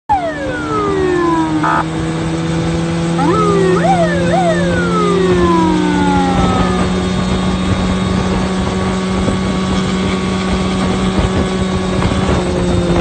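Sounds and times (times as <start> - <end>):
electronic vehicle siren wailing: 0.1 - 9.4.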